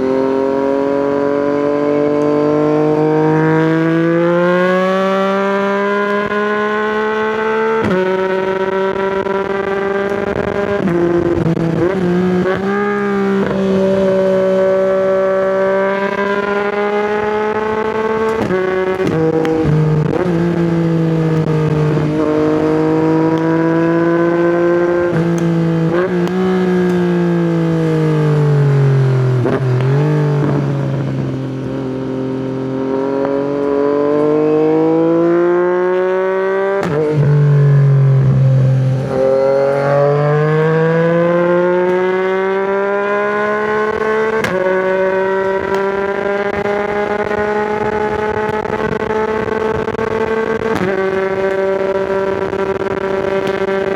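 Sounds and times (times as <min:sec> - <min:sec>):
motorcycle engine running: 0:00.0 - 0:34.3, 0:34.9 - 0:53.9.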